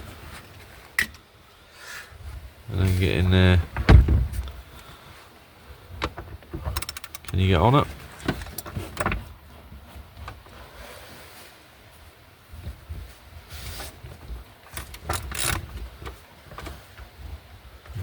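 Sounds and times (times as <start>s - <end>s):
spanner clicking on bolts: 6.7s - 7.4s, 14.7s - 15.7s.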